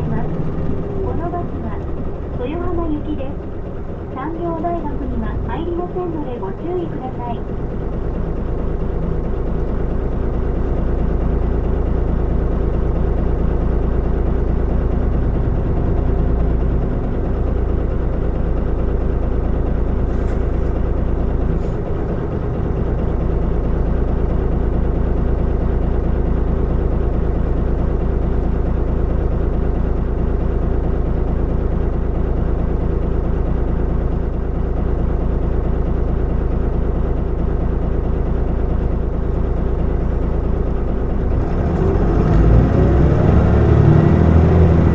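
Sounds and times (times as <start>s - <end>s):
bus diesel engine running: 0.0s - 44.9s.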